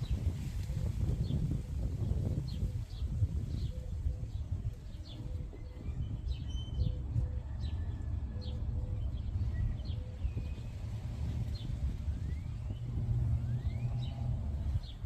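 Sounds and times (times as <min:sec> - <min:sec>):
birds chirping: 0:00.0 - 0:15.0
low rumble: 0:06.8 - 0:15.0.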